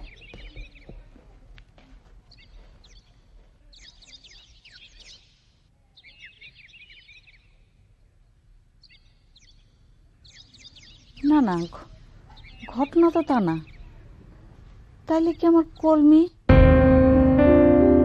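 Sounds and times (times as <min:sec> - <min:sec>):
birds chirping: 0:00.0 - 0:01.1, 0:02.3 - 0:07.7, 0:08.8 - 0:14.1
faint outdoor background noise: 0:00.0 - 0:18.0.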